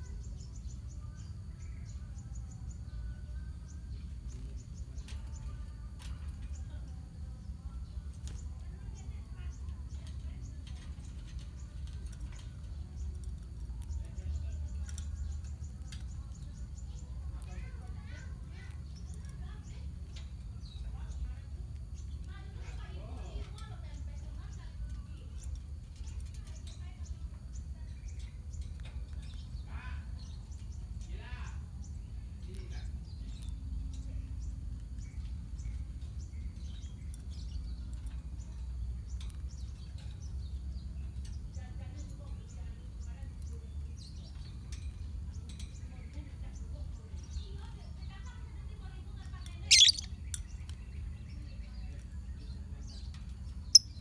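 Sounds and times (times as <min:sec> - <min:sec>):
lovebirds chattering: 0:00.0 - 0:54.0
lovebirds chirping: 0:49.1 - 0:54.0.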